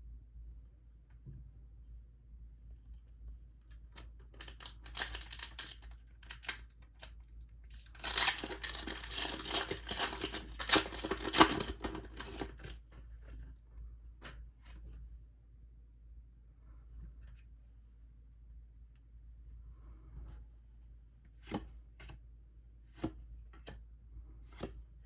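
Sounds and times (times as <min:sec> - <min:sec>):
packaging wrapper tearing and crinkling: 0:04.4 - 0:07.1, 0:07.7 - 0:12.7.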